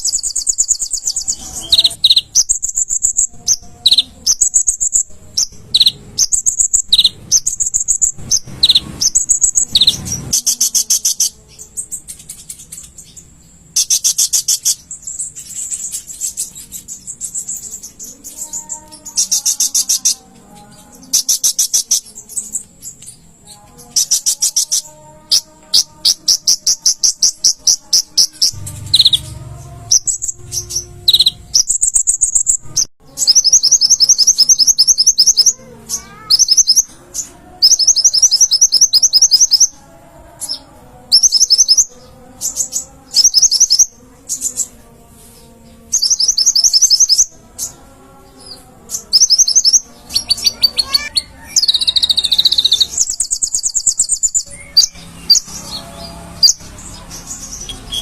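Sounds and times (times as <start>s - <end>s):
sunbird singing high trills: 0.0s - 39.8s, 40.4s - 44.8s, 46.0s - 47.8s, 48.4s - 58.0s.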